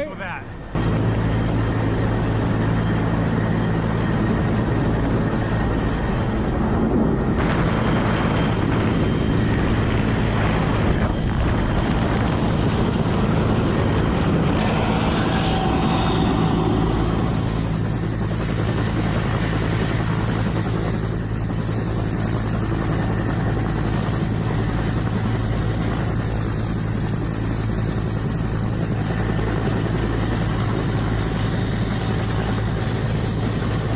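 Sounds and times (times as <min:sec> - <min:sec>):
helicopter rotor and engine drone: 0:00.0 - 0:33.9
high-pitched whine: 0:14.4 - 0:27.2.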